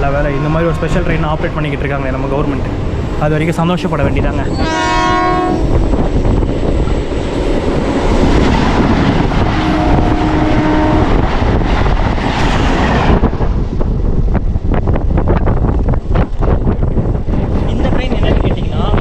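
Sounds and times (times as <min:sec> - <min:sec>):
train horn: 0:00.0 - 0:01.4, 0:04.5 - 0:05.8, 0:09.6 - 0:11.2
electric train rumbling past: 0:00.0 - 0:19.0.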